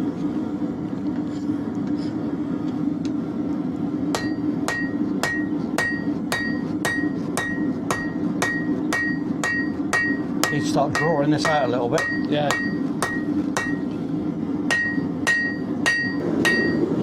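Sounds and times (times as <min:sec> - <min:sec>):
steady low hum: 0:00.0 - 0:17.0
hammer striking steel on anvil: 0:04.1 - 0:14.0, 0:14.7 - 0:17.0.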